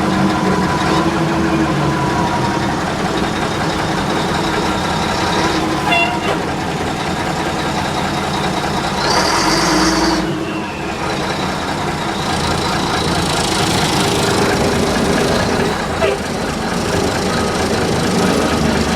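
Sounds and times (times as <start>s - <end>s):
truck engine running: 0.0s - 18.9s.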